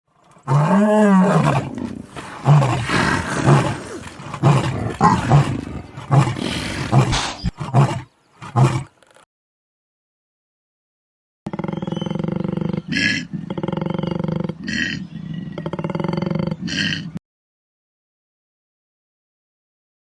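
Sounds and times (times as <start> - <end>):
animal calls: 1.2 - 9.0, 11.5 - 17.2.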